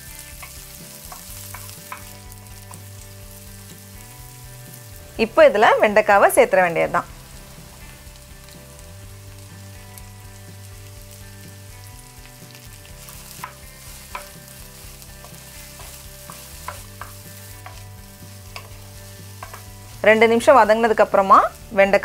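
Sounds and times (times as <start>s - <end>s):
vegetables sizzling in oil: 0.0s - 22.0s
wooden spoon clicking against pan: 0.4s - 2.8s, 18.5s - 18.8s, 19.4s - 19.7s.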